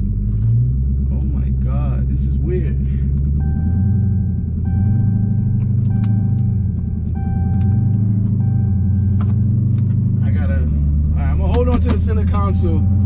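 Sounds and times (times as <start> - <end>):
car engine drone: 0.0 - 13.0
seat belt warning chime: 3.4 - 9.2, 12.3 - 13.0.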